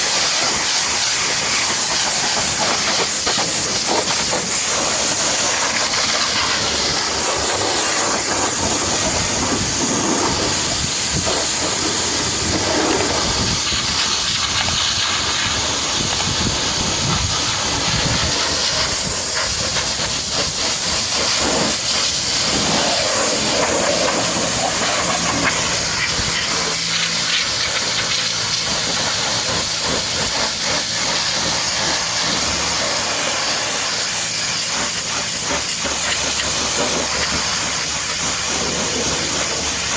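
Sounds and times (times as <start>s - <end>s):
pressure washer spraying water: 0.0s - 39.9s.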